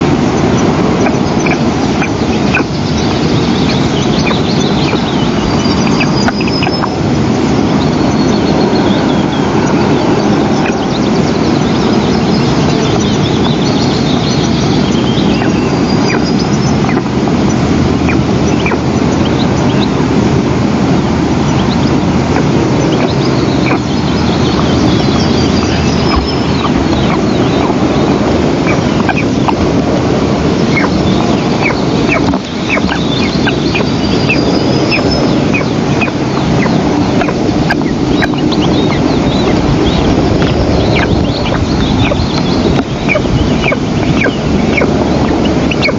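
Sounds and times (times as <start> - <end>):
low rushing noise: 0.0 - 45.9
eagle chicks begging chirps: 0.3 - 20.1, 21.4 - 45.9.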